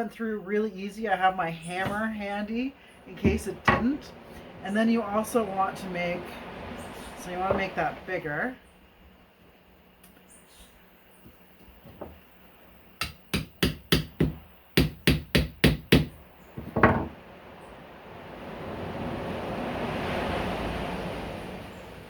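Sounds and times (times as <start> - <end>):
broad rush of noise: 1.9 - 8.6.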